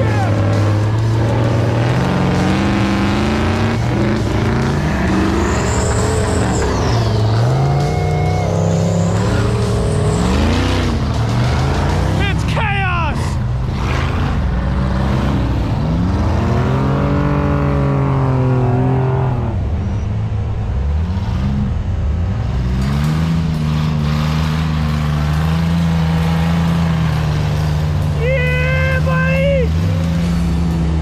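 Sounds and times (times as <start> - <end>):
truck engines revving hard: 0.0 - 31.0.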